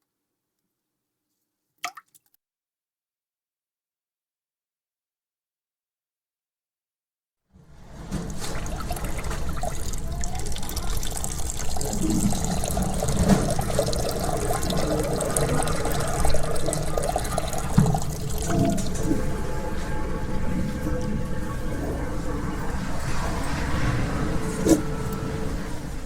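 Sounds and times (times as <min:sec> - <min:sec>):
toilet flushing and refilling: 0:07.6 - 0:26.0.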